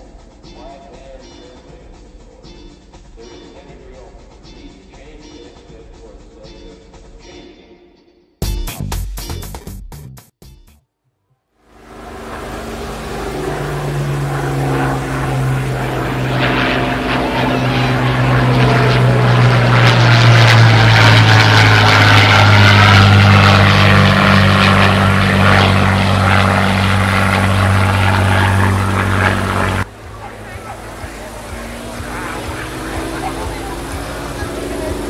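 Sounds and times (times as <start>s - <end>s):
light aircraft engine drone: 11.7s - 35.0s.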